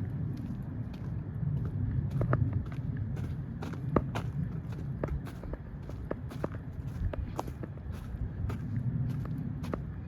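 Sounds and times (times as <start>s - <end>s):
footsteps on a trail: 0.0s - 10.0s.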